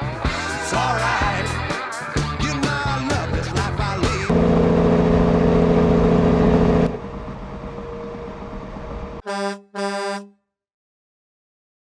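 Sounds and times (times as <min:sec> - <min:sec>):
faint rumble: 0:04.3 - 0:09.2
horn blasts: 0:09.2 - 0:10.4.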